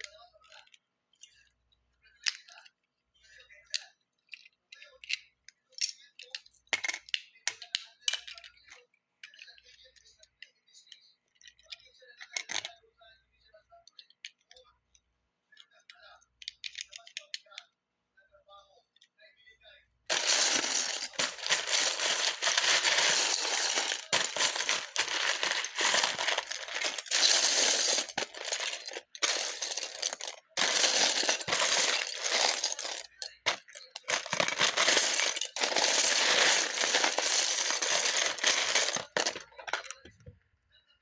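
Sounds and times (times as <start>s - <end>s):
plastic bricks clattering: 20.1s - 40.1s.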